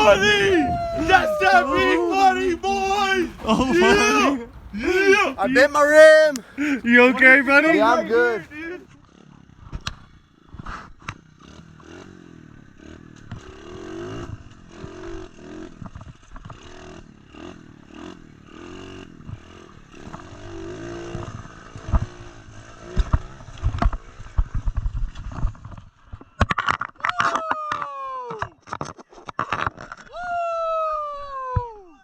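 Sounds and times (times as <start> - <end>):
motorbike crashing: 0.0 - 8.8
motorbike engine revving: 0.0 - 9.6.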